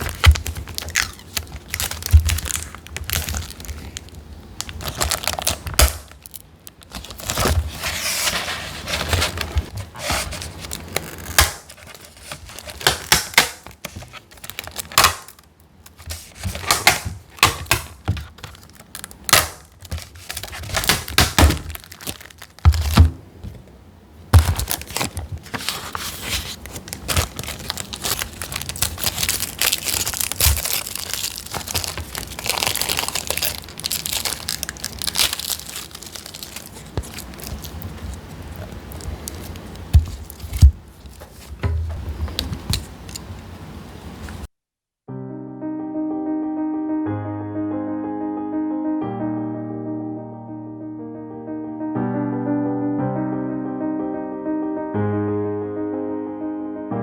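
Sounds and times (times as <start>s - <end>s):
plastic crinkling and tearing: 0.0s - 23.6s, 24.4s - 43.3s.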